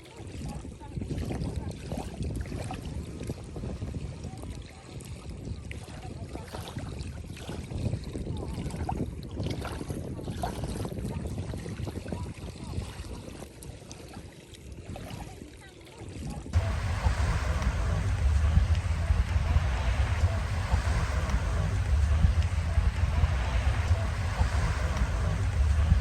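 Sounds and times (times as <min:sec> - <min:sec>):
river water sloshing and splashing: 0:04.0 - 0:19.1.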